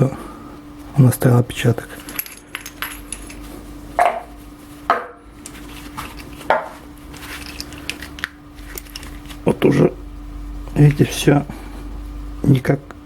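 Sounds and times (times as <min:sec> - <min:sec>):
metal knocks and clinks: 0:02.0 - 0:04.3.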